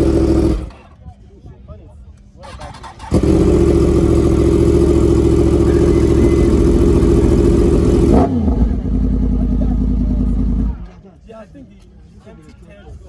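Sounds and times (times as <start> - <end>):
motorcycle engine revving: 0.0 - 0.8, 2.4 - 10.8.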